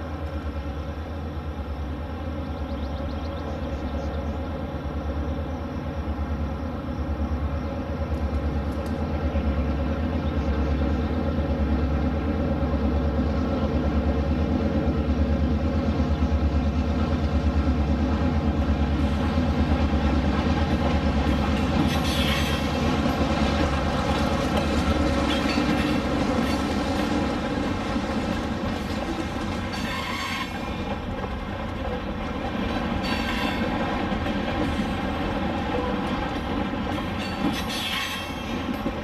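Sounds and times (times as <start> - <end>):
diesel train engine drone: 0.0 - 39.0
wheel and rail clatter: 15.2 - 39.0.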